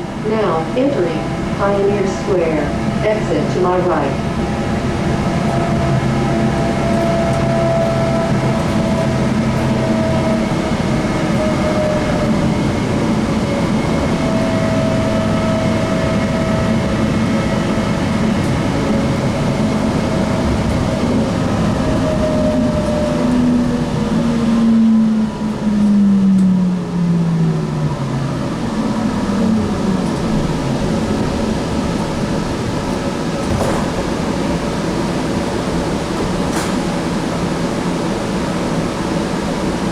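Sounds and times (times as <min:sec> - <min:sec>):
train rumbling in tunnel: 0:00.0 - 0:39.9.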